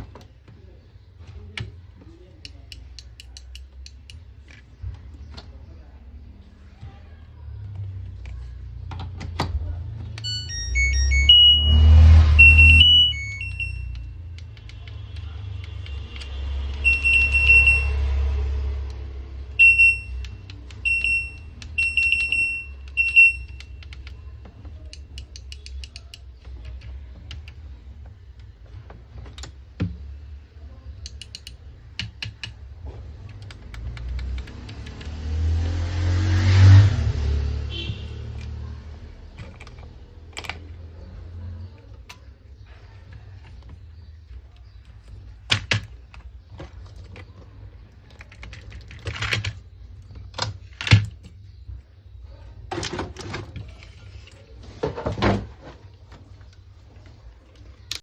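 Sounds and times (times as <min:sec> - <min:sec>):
clicks: 0:07.5 - 0:30.0
washing machine beeps: 0:10.2 - 0:14.3, 0:16.8 - 0:18.3, 0:19.5 - 0:23.8.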